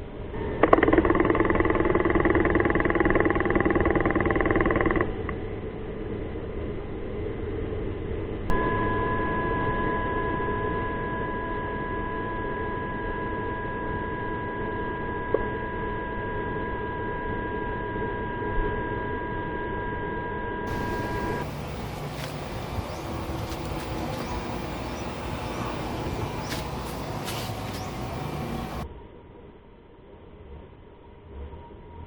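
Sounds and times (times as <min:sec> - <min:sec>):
electronic whine of high tones: 0:08.5 - 0:28.9
low noise hum: 0:20.7 - 0:28.9.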